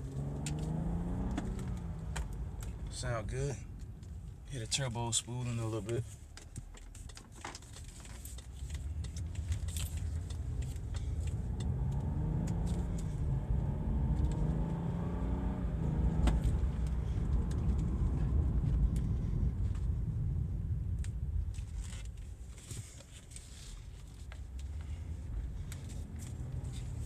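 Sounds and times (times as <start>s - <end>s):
car engine accelerating: 0.0s - 4.1s, 8.5s - 22.4s, 24.3s - 27.0s
road rumble: 0.0s - 27.0s
small rattles and clicks: 5.9s - 11.8s.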